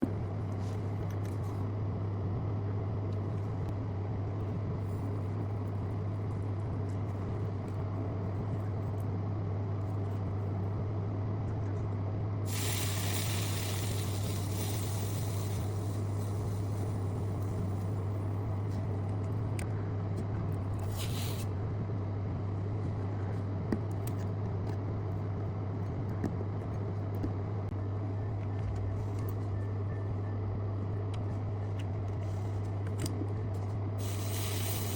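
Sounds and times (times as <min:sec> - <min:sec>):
low electrical hum: 0:00.0 - 0:34.9
machine-like noise: 0:12.4 - 0:32.7, 0:33.3 - 0:34.9
hiss: 0:12.5 - 0:17.3, 0:20.8 - 0:21.5, 0:34.0 - 0:34.9.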